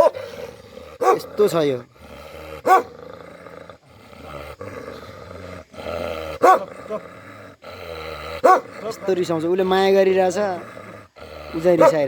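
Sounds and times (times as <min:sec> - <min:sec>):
dog barking: 0:00.0 - 0:00.3, 0:01.0 - 0:01.3, 0:02.6 - 0:02.9, 0:06.4 - 0:06.7, 0:08.4 - 0:08.7, 0:11.7 - 0:12.0
dog growling: 0:00.0 - 0:12.0.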